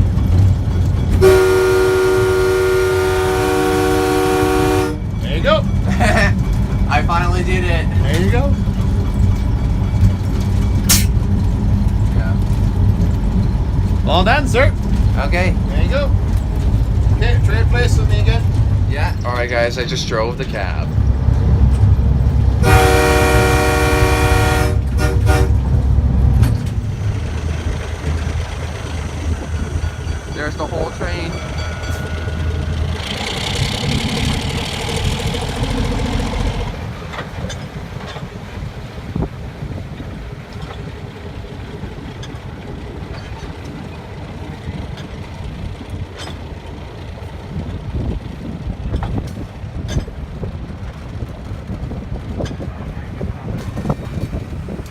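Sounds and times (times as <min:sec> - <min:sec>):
train rumbling: 0:00.0 - 0:54.9
locomotive horn blasts: 0:01.1 - 0:05.1, 0:22.6 - 0:25.8
loud low rumble: 0:10.9 - 0:37.1.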